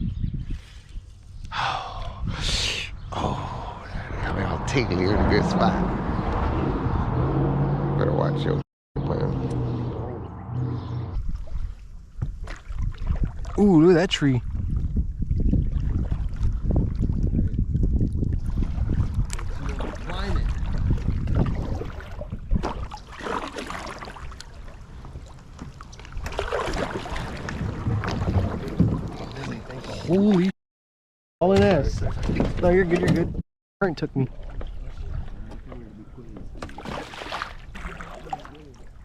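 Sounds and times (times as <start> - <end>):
wind rumble on microphone: 0.0 - 23.0, 26.9 - 30.1, 31.5 - 33.4, 34.5 - 36.6
water splashing and dripping: 11.2 - 30.5, 36.6 - 38.9.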